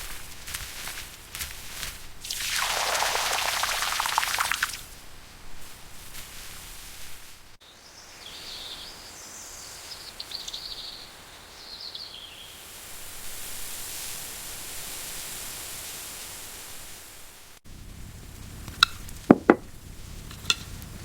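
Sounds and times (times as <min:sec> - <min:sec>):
steady outdoor hiss: 0:00.0 - 0:21.0
small birds chirping: 0:07.6 - 0:12.6.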